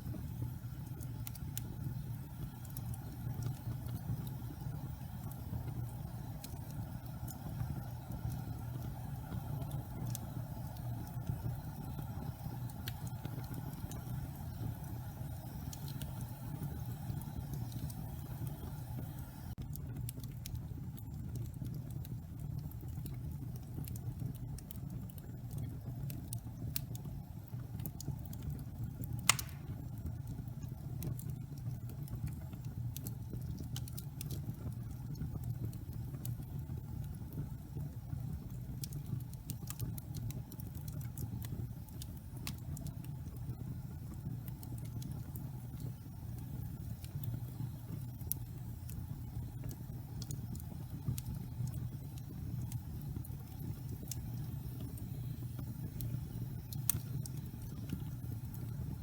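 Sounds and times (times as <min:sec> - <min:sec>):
fire rumbling in fireplace: 0:00.0 - 0:59.0
small fire crackles: 0:00.0 - 0:59.0
loud wood pop: 0:29.3 - 0:29.7.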